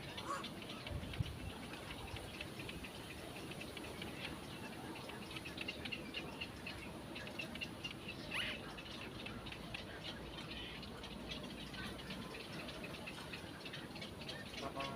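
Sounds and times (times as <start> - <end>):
birds chirping: 0.0 - 14.9.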